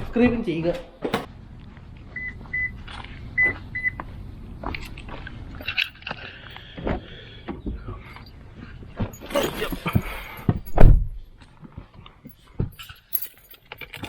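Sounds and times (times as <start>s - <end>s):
loud thump: 10.5s - 11.2s.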